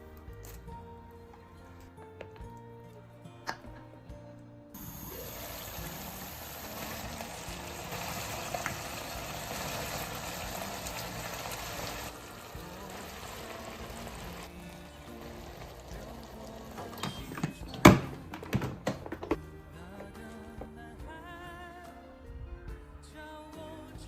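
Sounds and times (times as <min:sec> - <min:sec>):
water running from tap: 0:04.8 - 0:14.5, 0:15.1 - 0:17.1.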